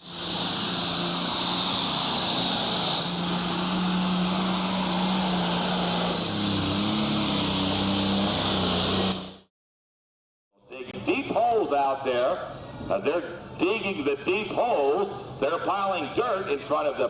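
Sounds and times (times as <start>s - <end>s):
tractor engine droning with whine: 0.0s - 9.5s.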